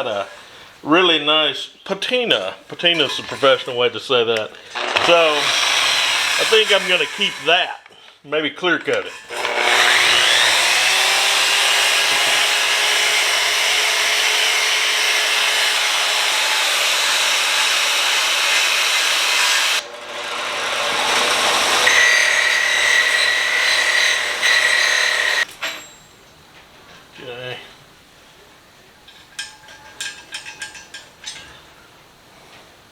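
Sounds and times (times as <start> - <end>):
wire wheel grinding metal: 4.8 - 7.5, 9.1 - 26.0.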